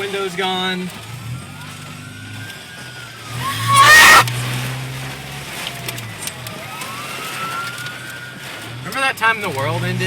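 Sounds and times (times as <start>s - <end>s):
distant siren wailing: 1.0s - 4.6s, 5.6s - 8.9s.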